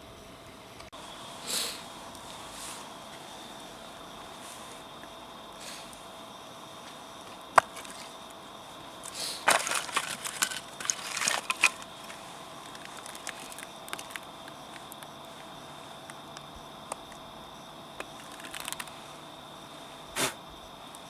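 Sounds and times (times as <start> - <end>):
dry wood snapping: 7.6 - 8.0, 9.0 - 15.3, 18.0 - 19.0.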